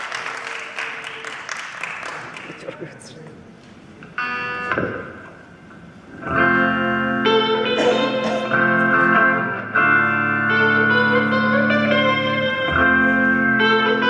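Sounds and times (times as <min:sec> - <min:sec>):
electric guitar chords: 0:03.5 - 0:14.0.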